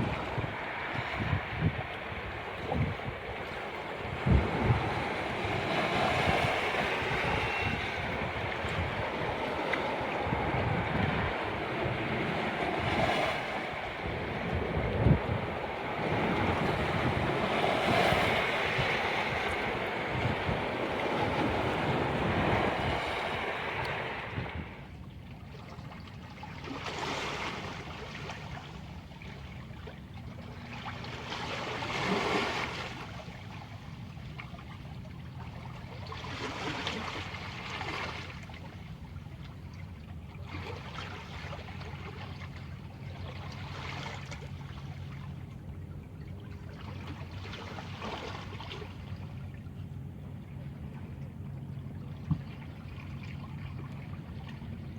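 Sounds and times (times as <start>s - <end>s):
waves washing onto shore: 0.0s - 25.0s, 30.0s - 45.5s.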